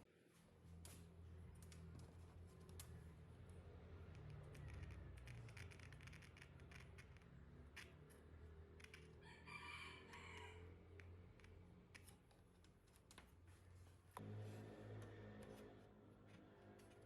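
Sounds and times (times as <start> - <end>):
low steady hum: 10.6 - 17.0.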